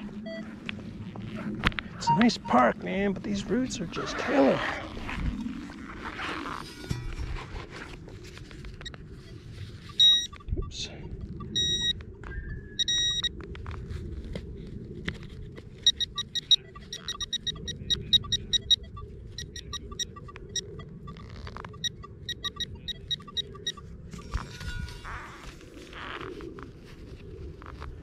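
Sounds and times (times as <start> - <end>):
metal detector beeping: 2.0 - 2.7, 8.8 - 13.3, 15.8 - 25.5.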